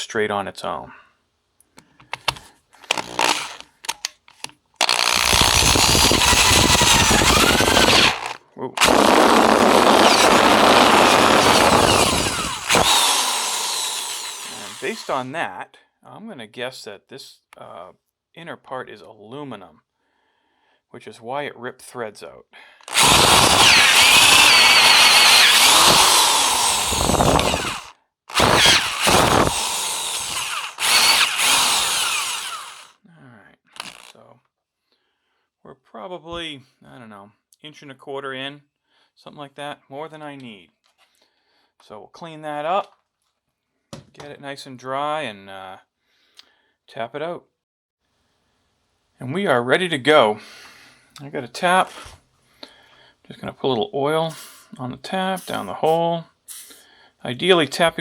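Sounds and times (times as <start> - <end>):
drill boring metal: 2.9 - 3.6, 4.8 - 15.3, 22.9 - 32.9.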